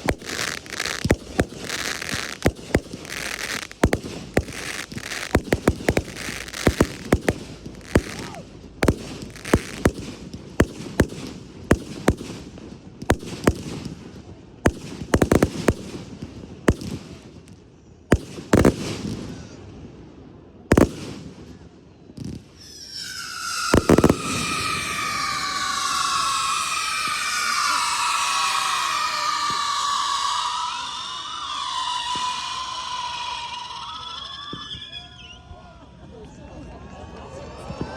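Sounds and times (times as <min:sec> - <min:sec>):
fireworks bangs and crackling: 0:00.0 - 0:35.4
whistle-like falling tone: 0:04.4 - 0:08.4, 0:22.6 - 0:35.6.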